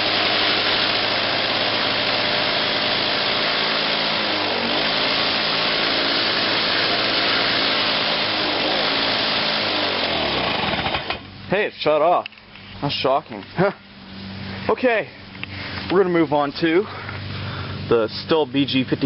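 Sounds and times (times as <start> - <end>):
engine rattle: 0.0 - 11.6
lawn mower engine running: 0.0 - 19.0.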